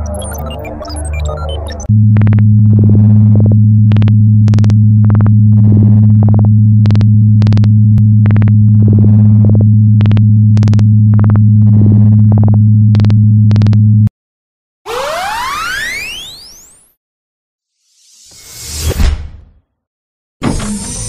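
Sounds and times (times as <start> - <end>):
low electronic hum: 0.0 - 14.1.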